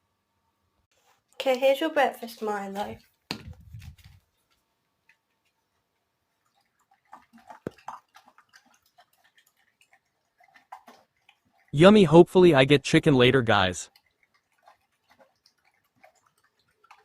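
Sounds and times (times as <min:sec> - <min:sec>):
dog eating from a bowl: 0:05.1 - 0:12.5, 0:13.8 - 0:17.0.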